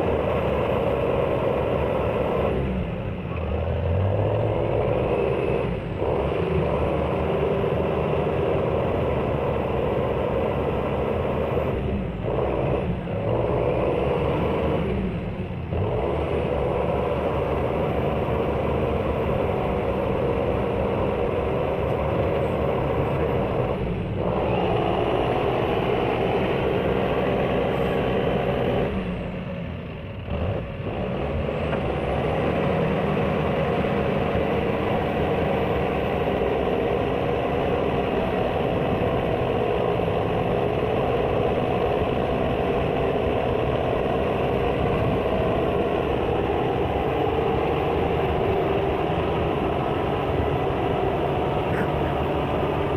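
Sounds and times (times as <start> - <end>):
tractor engines running under load: 0.0 - 52.9.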